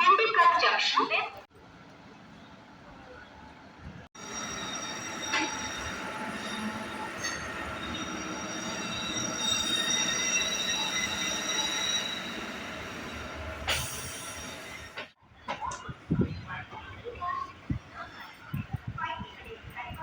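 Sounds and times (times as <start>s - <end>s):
electric train on rails: 0.1s - 20.0s
train wheels squealing: 4.2s - 15.1s.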